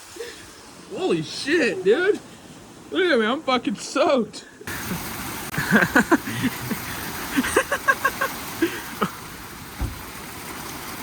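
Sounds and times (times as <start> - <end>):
heavy rain falling: 4.7 - 11.0
low thump: 9.8 - 10.1.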